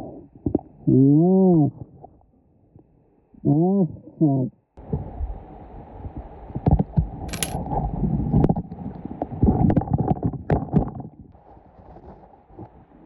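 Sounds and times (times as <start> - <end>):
rocks clacking together: 7.3 - 7.6.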